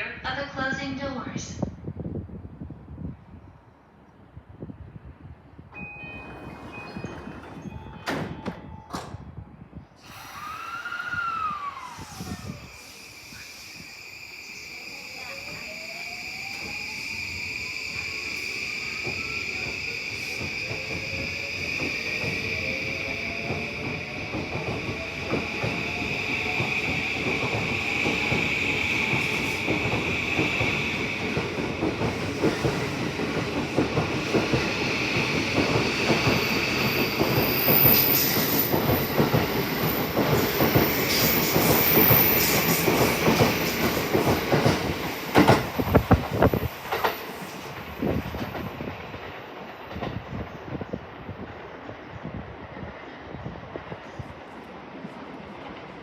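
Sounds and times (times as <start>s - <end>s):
rumble of wheels on rail: 1.6s - 56.0s
train traction motors whining: 10.0s - 48.5s.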